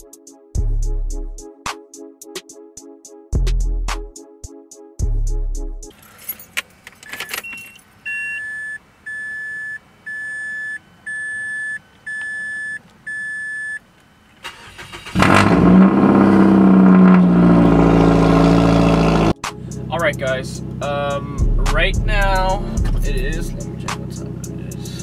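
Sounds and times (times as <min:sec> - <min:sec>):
keys rattling in ignition: 0:05.9 - 0:08.0
dashboard warning chime beeps: 0:07.0 - 0:13.9
car engine fast idle: 0:14.4 - 0:19.3.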